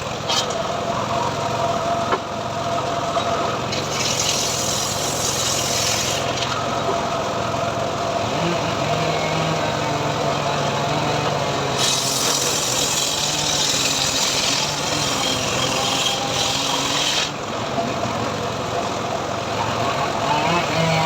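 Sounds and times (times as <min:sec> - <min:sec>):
saw blade cutting log: 0:00.0 - 0:00.6, 0:03.7 - 0:06.7, 0:08.3 - 0:17.5, 0:19.6 - 0:21.0
sawmill engine running: 0:00.0 - 0:21.0.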